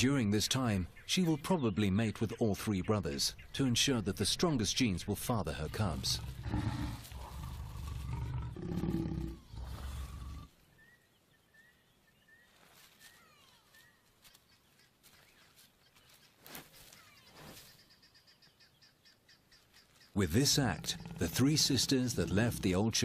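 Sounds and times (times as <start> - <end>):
lion growling and snarling: 5.8 - 10.5, 20.3 - 23.0
faint bird chirps: 9.2 - 20.2
thin sweeping bird calls: 9.3 - 20.2.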